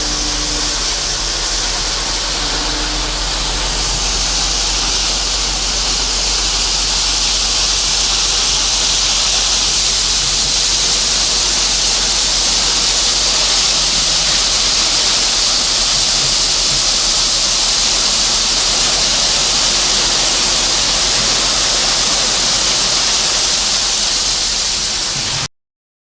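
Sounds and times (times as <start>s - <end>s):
low hum: 0.0s - 25.3s
loud rushing hiss: 0.0s - 25.5s.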